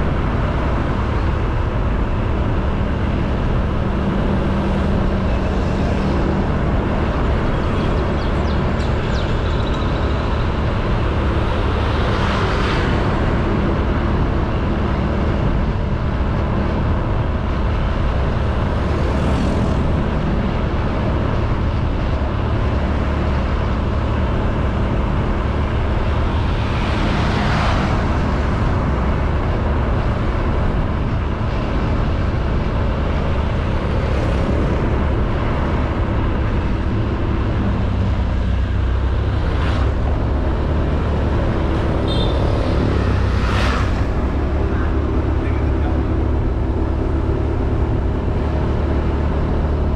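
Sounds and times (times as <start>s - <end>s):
wind and road noise: 0.0s - 49.9s
passing vehicle whooshes: 22.8s - 49.4s.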